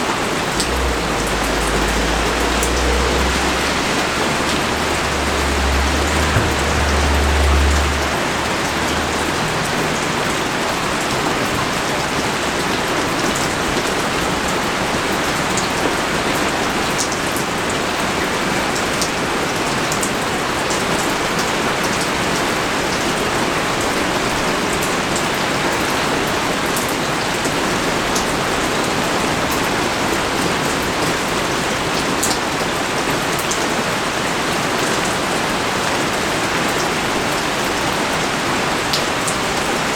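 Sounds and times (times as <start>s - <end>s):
heavy rain falling: 0.0s - 39.9s
raindrops ticking on surface: 0.1s - 24.0s
low rumble: 0.3s - 11.1s.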